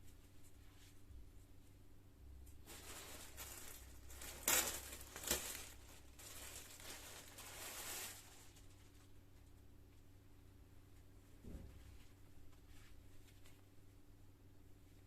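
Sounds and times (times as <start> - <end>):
material rustling and crinkling: 2.5 - 9.6, 11.5 - 13.8.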